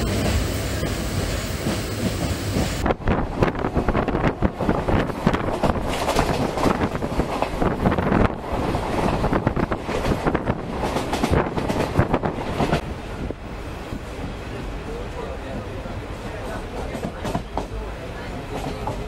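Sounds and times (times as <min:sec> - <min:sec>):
train rumble and rattle: 0:00.0 - 0:19.0
wind buffeting microphone: 0:01.1 - 0:14.8.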